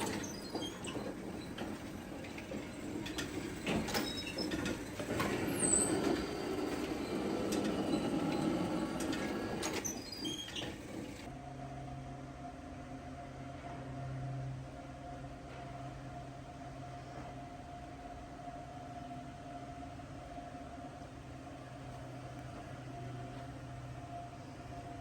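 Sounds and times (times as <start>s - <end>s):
mechanical rumble: 0.0s - 11.3s
metal squeaks: 0.0s - 11.3s.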